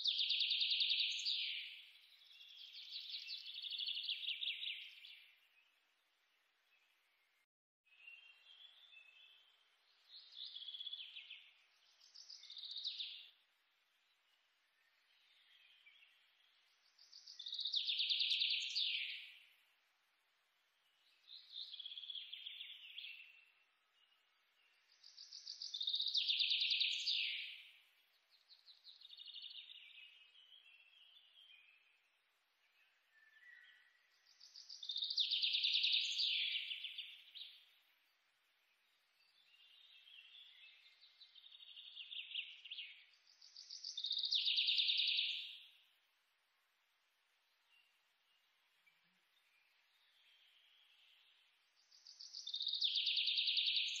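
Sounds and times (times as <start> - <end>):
bird song with trills: 0.0 - 5.8, 7.9 - 13.4, 14.0 - 19.6, 20.8 - 38.0, 38.6 - 46.0, 47.5 - 54.0.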